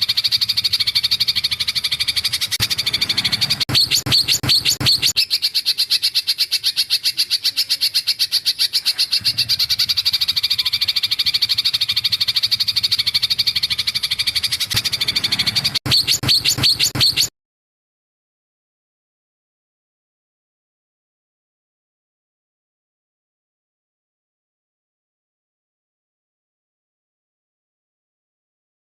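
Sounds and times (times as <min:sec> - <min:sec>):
songbird trill: 0:00.0 - 0:17.3.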